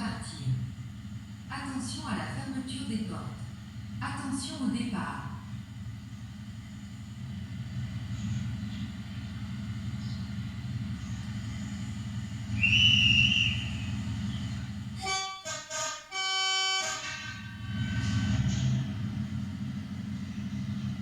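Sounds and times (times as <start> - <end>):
diesel engine rumbling: 0.0 - 15.9, 16.7 - 21.0
short high whistle: 12.6 - 13.9
railcar horn: 15.0 - 18.8.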